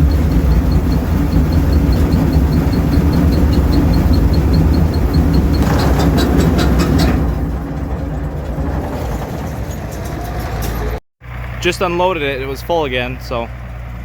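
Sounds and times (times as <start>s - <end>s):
fast mechanical ticking: 0.0s - 9.6s
diesel tractor engine running: 0.0s - 14.0s
clattering clicks: 3.3s - 11.0s.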